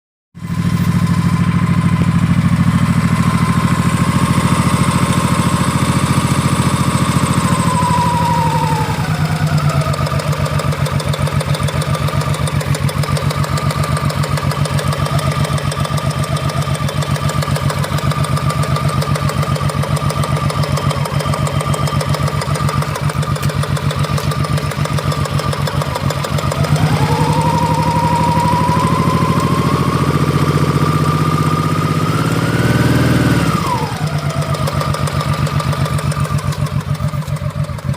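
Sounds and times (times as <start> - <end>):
motorcycle engine idling: 0.4 - 37.9
high-pitched whine: 26.6 - 31.8.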